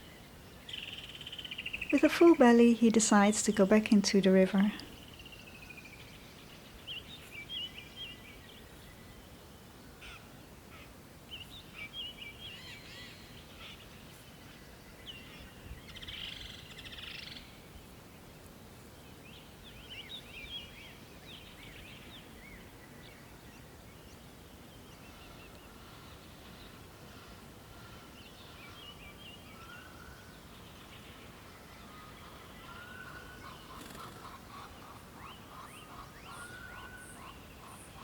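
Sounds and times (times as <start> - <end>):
birds chirping and trilling: 24.8 - 38.0.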